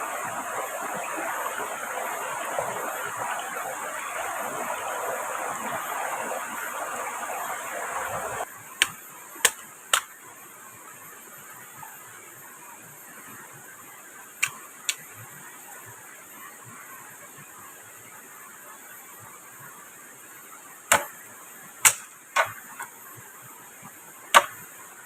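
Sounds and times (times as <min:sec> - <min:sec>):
flowing water: 0:00.0 - 0:08.5
sharp knocks: 0:20.9 - 0:21.1, 0:21.8 - 0:22.9, 0:24.4 - 0:24.6.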